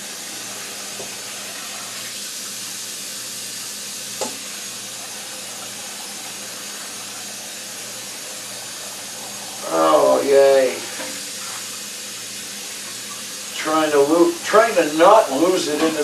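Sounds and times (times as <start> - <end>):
tap running into sink: 0.9 - 1.3, 4.1 - 4.6.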